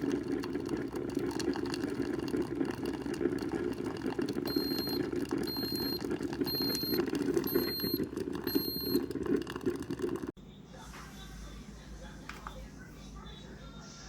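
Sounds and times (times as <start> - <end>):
coffee maker beeping: 0.0 - 10.4.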